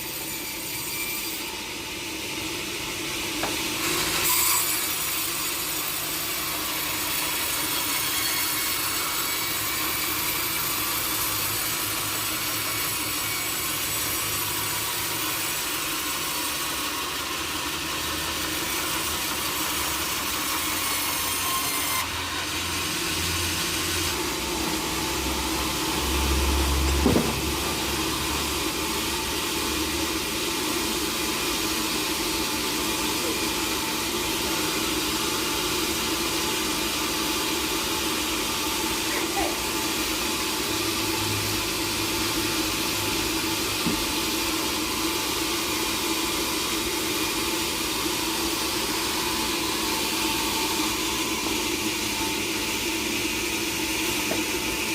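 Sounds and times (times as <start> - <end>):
sawmill saw cutting wood: 0.0 - 54.9
short knock: 27.0 - 27.5.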